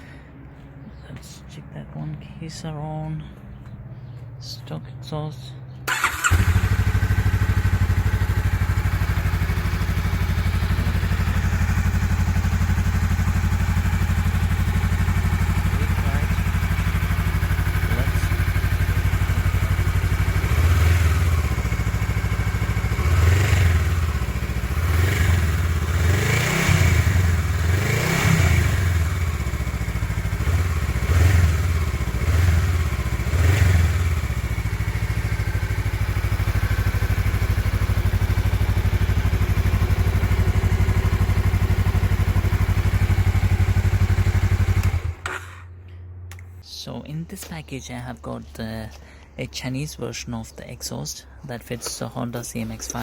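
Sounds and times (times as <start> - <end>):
motorcycle engine idling: 5.9 - 45.7.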